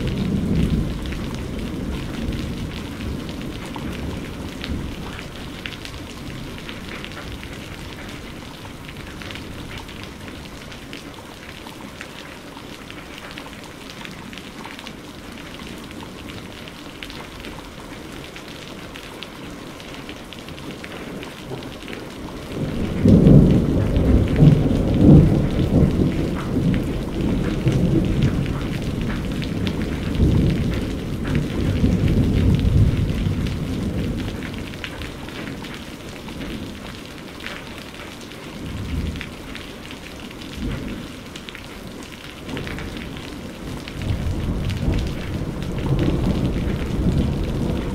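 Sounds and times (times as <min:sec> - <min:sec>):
thunder rumbling: 0:00.0 - 0:10.3, 0:22.3 - 0:35.7, 0:42.5 - 0:47.9
steady rain: 0:00.0 - 0:47.9.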